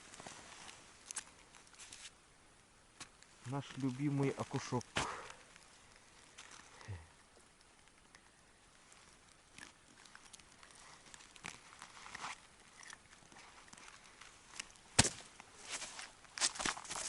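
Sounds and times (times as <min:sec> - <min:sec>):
crunches on ice: 0:08.9 - 0:17.0.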